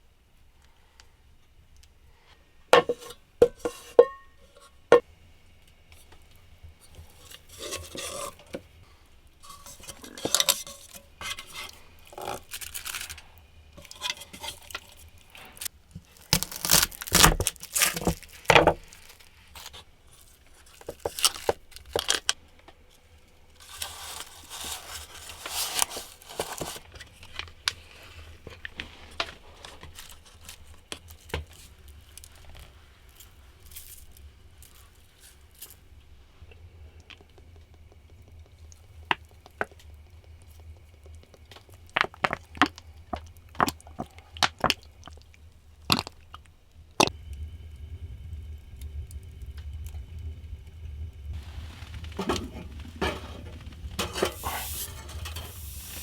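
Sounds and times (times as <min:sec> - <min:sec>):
rustling tearing and scraping: 0:09.4 - 0:22.4, 0:23.6 - 0:35.7, 0:51.4 - 0:56.0.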